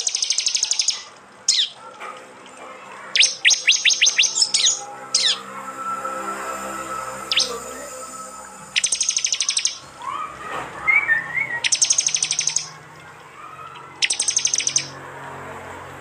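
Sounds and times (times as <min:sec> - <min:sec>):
bird ticking trills: 0:00.0 - 0:12.8, 0:13.4 - 0:15.0
short whistled bird notes: 0:07.3 - 0:07.6, 0:08.7 - 0:09.8.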